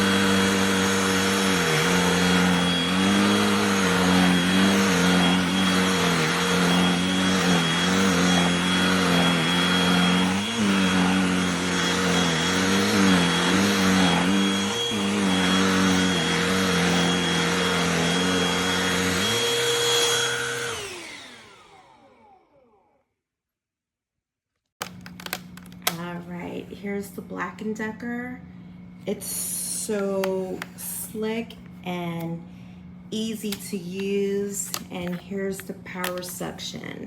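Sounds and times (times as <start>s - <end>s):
handheld vacuum motor running: 0.0s - 23.0s, 24.8s - 26.2s, 33.2s - 36.8s.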